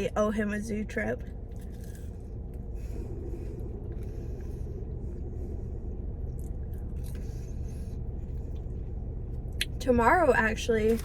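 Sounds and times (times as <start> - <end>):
car cabin rumble: 0.0 - 11.0
person chewing food: 1.3 - 9.8.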